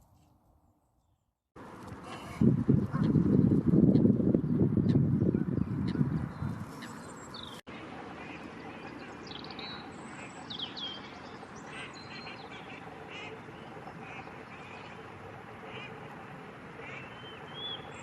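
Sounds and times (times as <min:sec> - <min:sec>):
birds chirping: 0:02.8 - 0:18.0.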